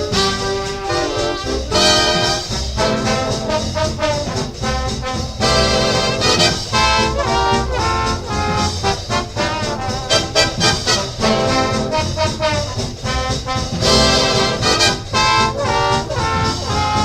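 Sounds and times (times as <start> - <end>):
big band swing jazz: 0.0 - 17.0
trumpets and trombones playing: 0.0 - 17.0.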